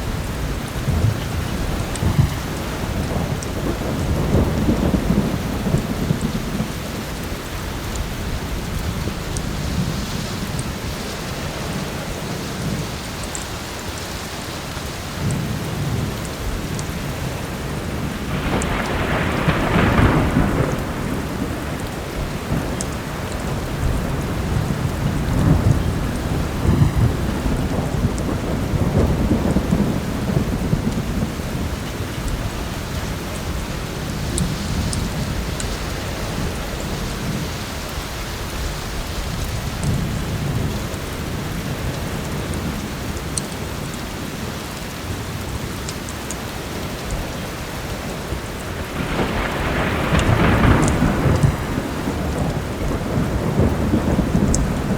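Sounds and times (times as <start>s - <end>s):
thunder rumbling: 0.0s - 13.4s, 15.1s - 54.9s
heavy rain: 0.0s - 54.9s.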